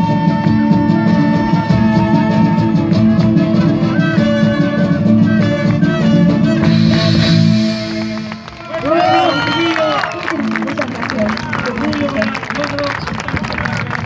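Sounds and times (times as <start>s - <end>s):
live band playing instrumental: 0.0s - 11.4s.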